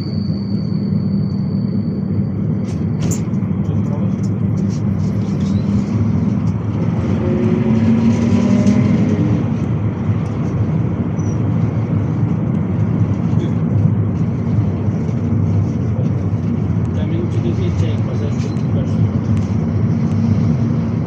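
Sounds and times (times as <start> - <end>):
minibus engine and road noise: 0.0 - 21.0.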